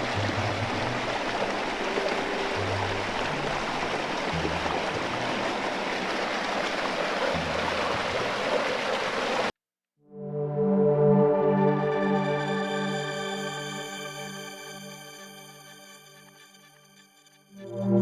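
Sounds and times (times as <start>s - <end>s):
rushing creek water: 0.0s - 9.5s.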